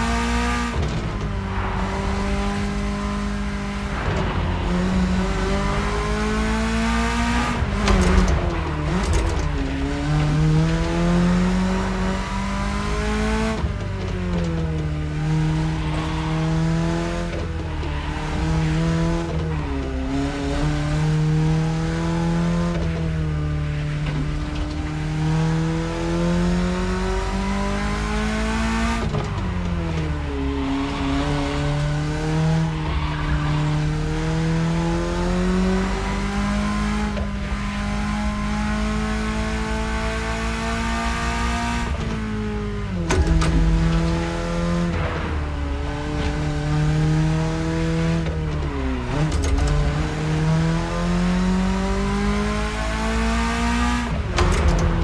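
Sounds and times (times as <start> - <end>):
car engine revving through gears: 0.0 - 55.0.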